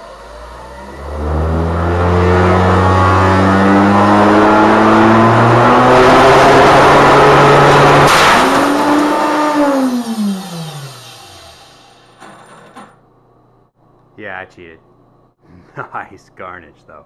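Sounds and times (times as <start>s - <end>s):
router motor whining: 8.6s - 12.2s.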